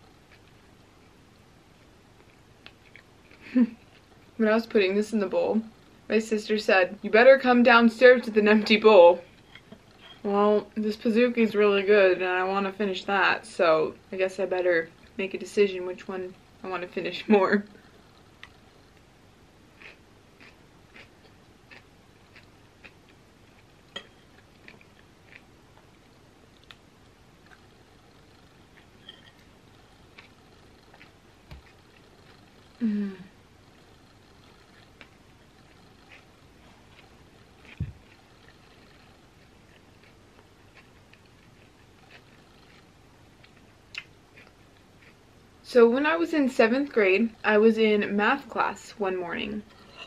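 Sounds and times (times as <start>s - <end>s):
soft wet chewing: 0.1s - 4.4s, 17.7s - 19.1s, 19.7s - 32.8s, 33.6s - 45.6s
fork scraping bowl: 29.0s - 29.4s, 49.7s - 50.0s.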